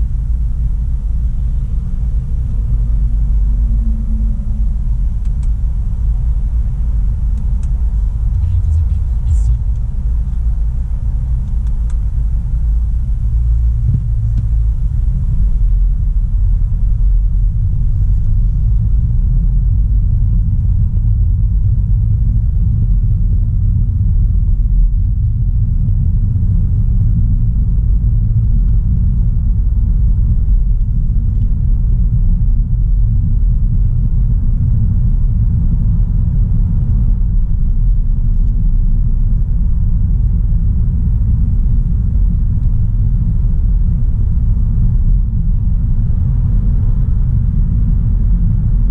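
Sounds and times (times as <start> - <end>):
car engine and road noise: 0.0 - 48.9.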